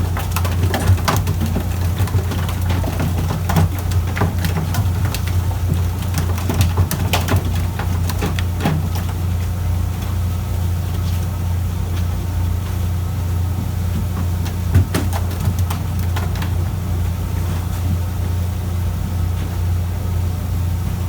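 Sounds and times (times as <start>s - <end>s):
boat engine humming: 7.6s - 21.0s.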